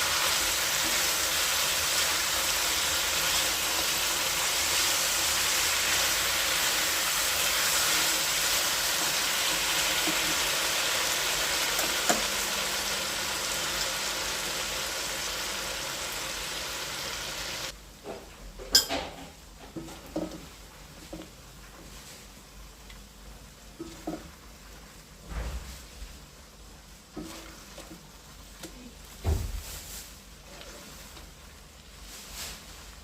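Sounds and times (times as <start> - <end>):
meat sizzling in a frying pan: 0.0 - 17.8.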